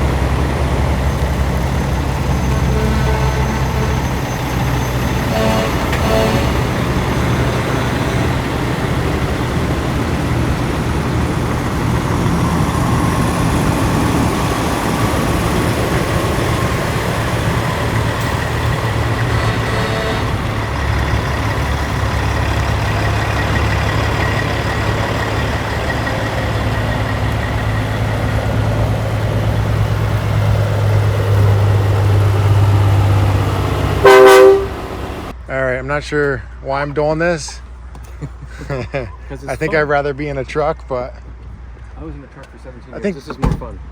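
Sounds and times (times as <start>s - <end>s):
large engine running: 0.0s - 35.4s
loud pitched horn blast: 1.8s - 8.3s, 17.7s - 21.0s, 33.8s - 35.3s.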